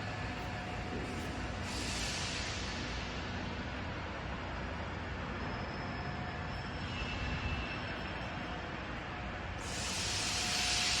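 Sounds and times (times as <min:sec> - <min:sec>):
loud airy hiss: 0:09.6 - 0:11.0.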